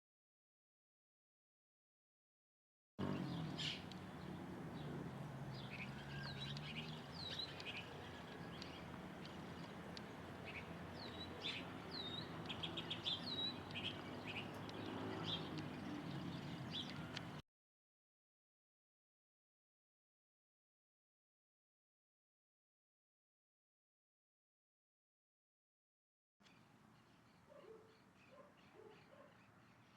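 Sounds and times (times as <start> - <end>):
birds chirping: 3.0 - 17.4, 26.4 - 29.9.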